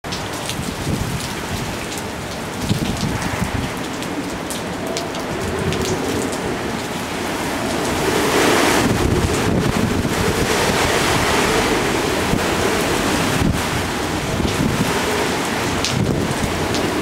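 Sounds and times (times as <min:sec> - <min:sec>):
sharp raindrop ticks: 0:00.0 - 0:07.0, 0:12.3 - 0:17.0
wind-driven rain: 0:00.0 - 0:17.0
strong wind rushing: 0:00.4 - 0:17.0.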